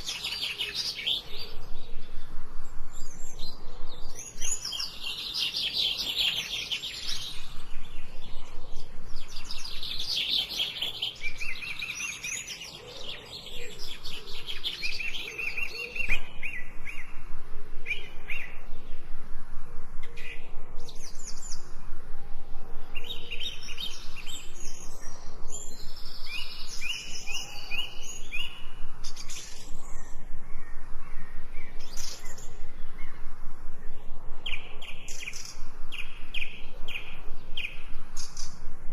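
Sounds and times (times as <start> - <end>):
songbirds chirping and singing: 0.0 - 38.9.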